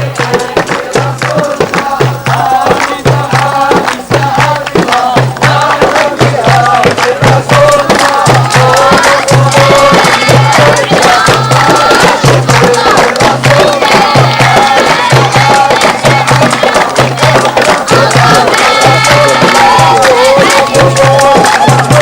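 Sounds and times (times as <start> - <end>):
group singing folk song: 0.0 - 22.0
percussion strokes: 0.0 - 22.0.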